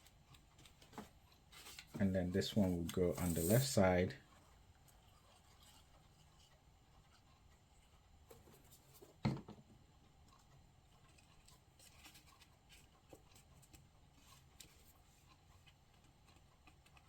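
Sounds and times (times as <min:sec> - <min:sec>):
paper rustling: 0:00.6 - 0:03.8.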